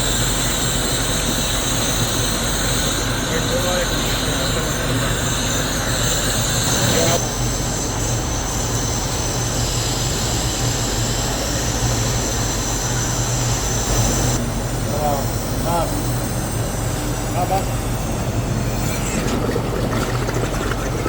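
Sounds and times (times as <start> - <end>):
factory machinery running: 0.0 - 21.0.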